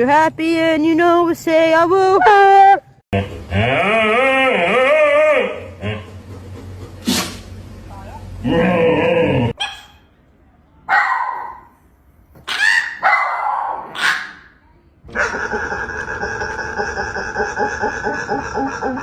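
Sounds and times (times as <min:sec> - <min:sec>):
dog calling: 0:09.5 - 0:10.1, 0:12.4 - 0:14.5, 0:15.1 - 0:19.0.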